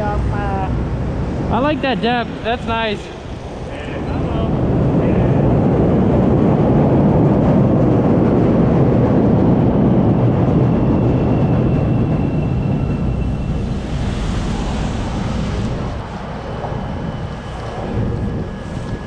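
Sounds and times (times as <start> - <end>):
street traffic: 0.0 - 4.6
wind: 0.0 - 19.0.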